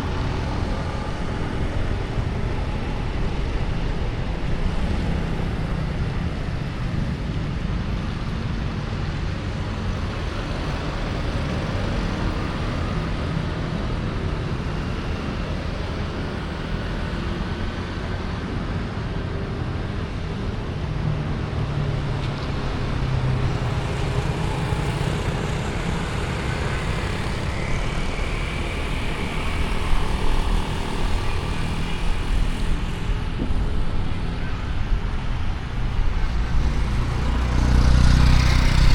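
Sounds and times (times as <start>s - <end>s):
traffic rumble and road noise: 0.0s - 38.9s
engine hum: 19.8s - 38.9s.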